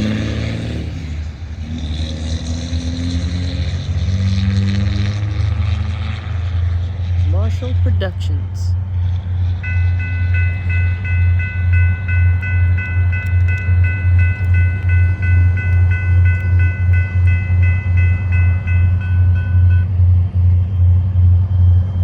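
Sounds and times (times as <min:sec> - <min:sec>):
freight train rumbling: 0:00.0 - 0:22.0
railroad crossing bell ringing: 0:09.5 - 0:20.0.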